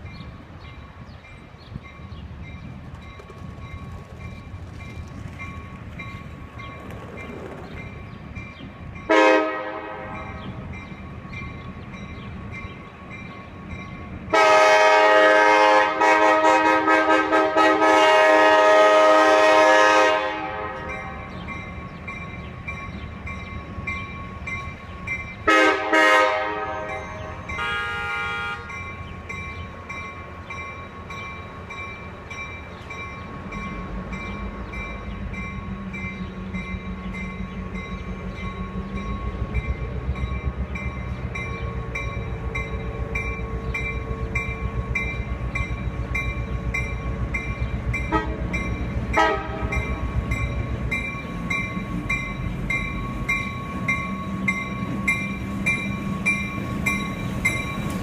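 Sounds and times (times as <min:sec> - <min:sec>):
train rumbling: 0:00.0 - 0:58.0
train horn blasts: 0:09.1 - 0:10.5, 0:14.3 - 0:21.2, 0:25.5 - 0:28.8, 0:48.1 - 0:49.9.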